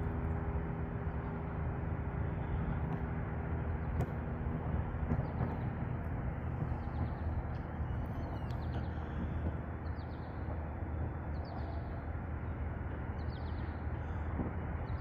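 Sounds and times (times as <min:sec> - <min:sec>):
low outdoor rumble: 0:00.0 - 0:15.0
small birds chirping: 0:05.1 - 0:15.0.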